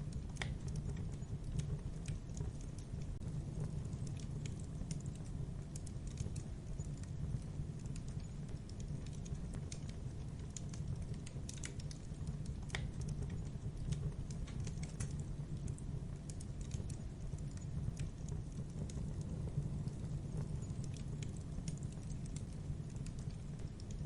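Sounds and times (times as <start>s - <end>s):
fire crackling: 0.0s - 24.0s.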